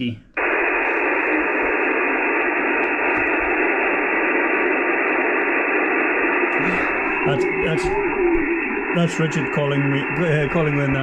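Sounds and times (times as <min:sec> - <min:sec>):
radio static hiss: 0:00.4 - 0:11.0.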